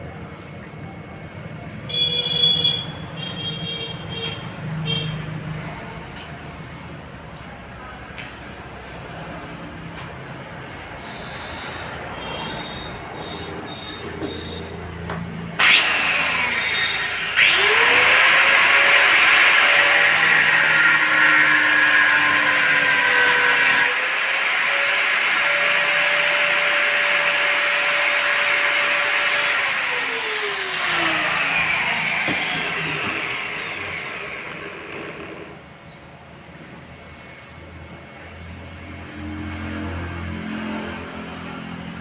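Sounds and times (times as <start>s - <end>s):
electric power tool whining: 15.6s - 35.6s.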